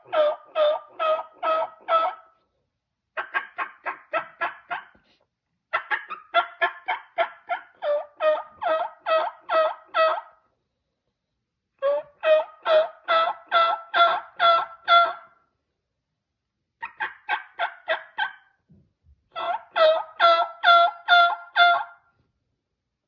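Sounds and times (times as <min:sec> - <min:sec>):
turkey yelping: 0:00.0 - 0:02.4, 0:03.2 - 0:05.0, 0:05.7 - 0:10.4, 0:11.8 - 0:15.4, 0:16.8 - 0:18.6, 0:19.3 - 0:22.0.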